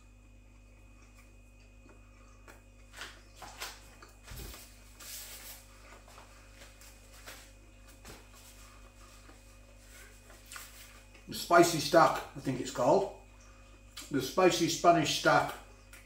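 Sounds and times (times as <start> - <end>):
person chewing food: 0.0 - 5.0, 5.7 - 11.3.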